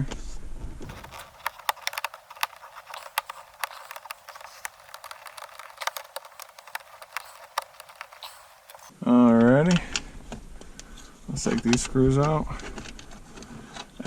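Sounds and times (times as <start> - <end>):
tool clicking on plastic trim: 0.8 - 8.9.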